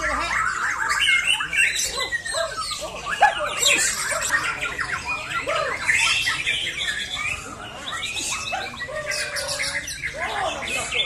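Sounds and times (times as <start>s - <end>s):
many songbirds singing: 0.0s - 11.0s.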